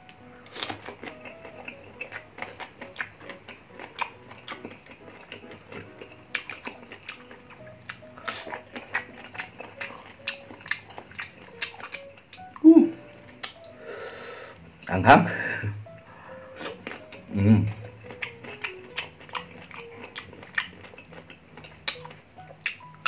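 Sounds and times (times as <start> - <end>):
crunchy chewing: 0.1 - 13.8, 16.0 - 23.0
wet mouth clicks: 13.3 - 13.7, 17.8 - 23.0.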